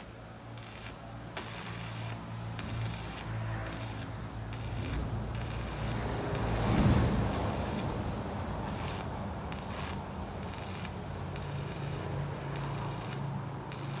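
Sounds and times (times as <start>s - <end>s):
arc welding crackling hiss: 0.0s - 14.0s.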